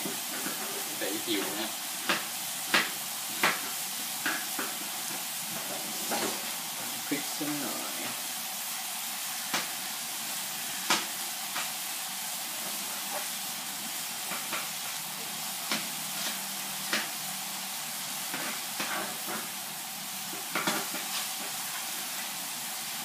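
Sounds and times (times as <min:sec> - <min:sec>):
sharp pops of frying: 0:00.0 - 0:07.4, 0:08.0 - 0:23.0
meat sizzling in a frying pan: 0:00.0 - 0:23.0.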